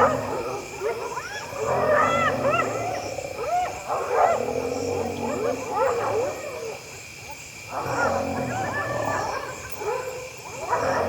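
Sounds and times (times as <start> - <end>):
hyenas yelping calls: 0.0 - 6.8, 7.7 - 10.0
low growling: 4.3 - 5.7.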